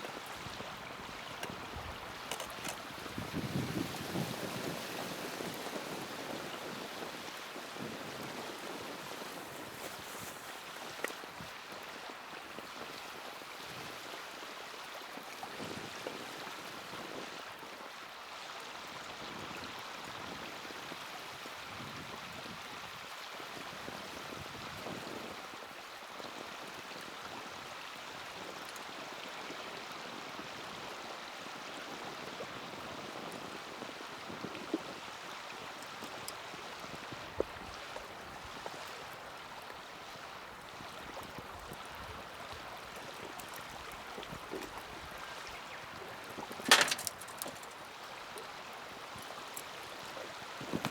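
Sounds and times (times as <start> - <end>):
fire crackles: 46.6 - 47.8.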